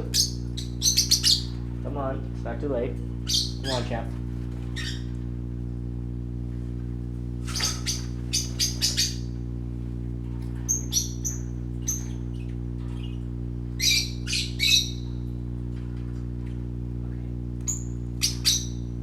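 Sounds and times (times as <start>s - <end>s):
low electrical hum: 0.0s - 19.0s
parrots squawking and chirping: 0.1s - 1.7s, 3.2s - 5.2s, 7.4s - 9.4s, 10.6s - 13.2s, 13.8s - 15.1s, 17.7s - 18.9s.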